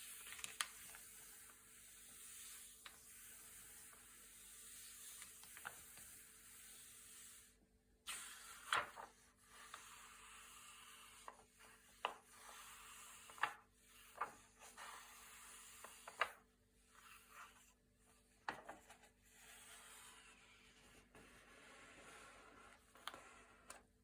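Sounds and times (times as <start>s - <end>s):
glossy paper pages turning: 0.1s - 1.4s, 8.6s - 9.1s.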